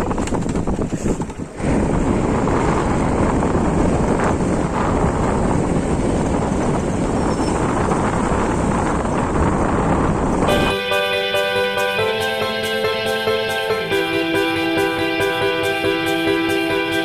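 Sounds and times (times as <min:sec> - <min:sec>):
vehicle rumble on road: 0:00.0 - 0:10.5
wind on microphone: 0:00.0 - 0:10.7.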